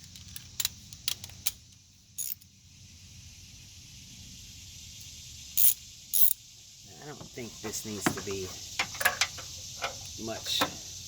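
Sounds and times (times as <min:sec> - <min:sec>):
faint steady hum: 0:00.0 - 0:11.0
metallic clicks of hand tools: 0:02.2 - 0:02.5.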